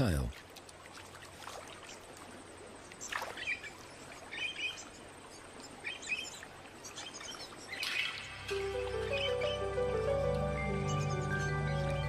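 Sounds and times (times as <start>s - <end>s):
soft outdoor hiss: 0.0s - 12.0s
small birds chirping: 1.7s - 12.0s
music: 8.2s - 12.0s.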